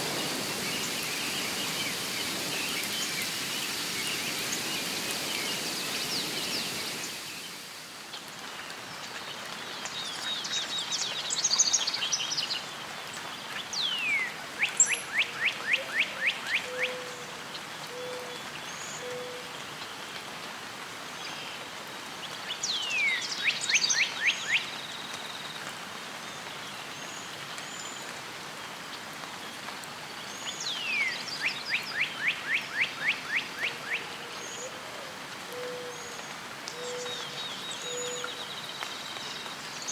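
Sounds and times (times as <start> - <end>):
rain-like nature hiss: 0.0 - 39.9
songbird singing trill: 13.8 - 17.1, 36.8 - 39.9.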